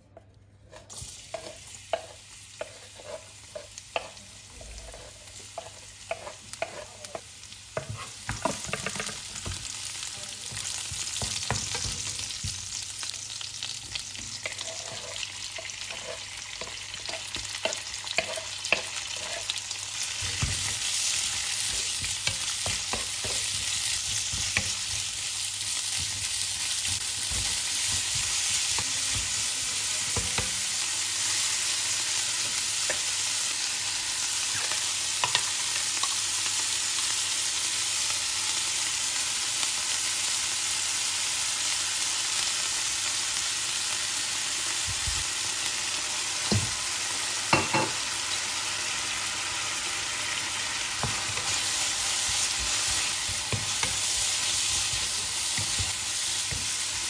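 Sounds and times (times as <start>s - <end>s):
wooden spatula tapping and scraping: 0.1s - 9.8s, 10.4s - 13.2s, 13.9s - 30.6s, 51.0s - 57.0s
food sizzling in oil: 0.7s - 57.0s.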